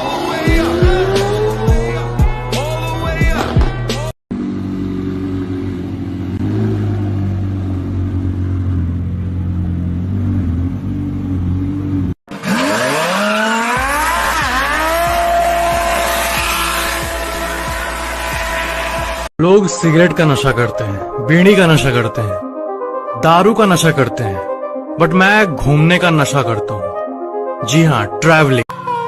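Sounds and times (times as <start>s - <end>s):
sports car engine revving: 0.0s - 2.2s, 4.3s - 19.3s.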